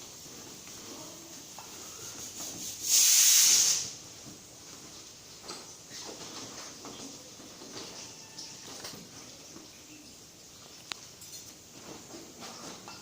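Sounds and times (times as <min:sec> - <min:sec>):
pressurised gas hiss: 0:00.0 - 0:04.2.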